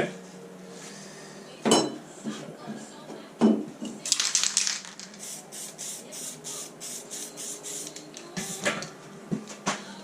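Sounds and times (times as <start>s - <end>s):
aerosol can spraying: 4.6s - 8.8s.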